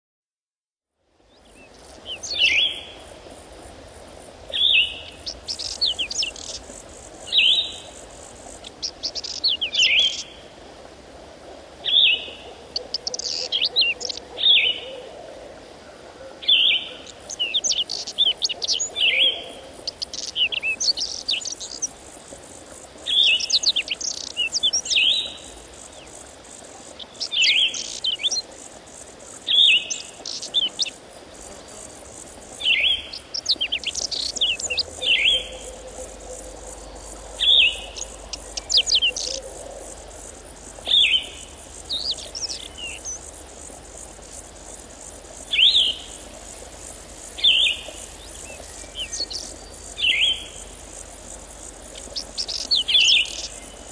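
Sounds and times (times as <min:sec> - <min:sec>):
faint background noise: 0:00.9 - 0:53.9
songbird singing: 0:01.2 - 0:03.4, 0:04.4 - 0:10.5, 0:11.8 - 0:53.9.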